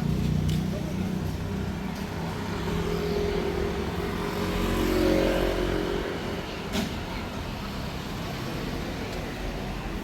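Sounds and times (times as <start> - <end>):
low traffic rumble: 0.0 - 10.0.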